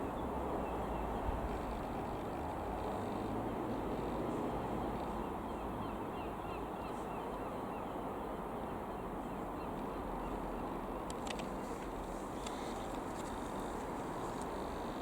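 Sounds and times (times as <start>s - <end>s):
outdoor rumble: 0.0s - 5.8s
faint clicks: 11.0s - 15.0s.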